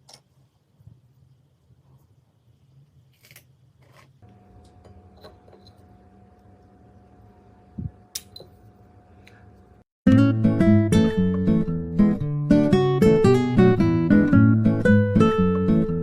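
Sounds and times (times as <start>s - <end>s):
microwave running hum: 4.2s - 9.8s.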